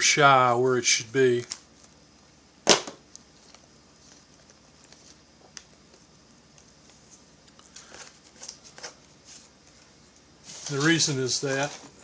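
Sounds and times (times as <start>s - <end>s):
handling rustle: 3.3s - 6.0s, 6.7s - 12.0s.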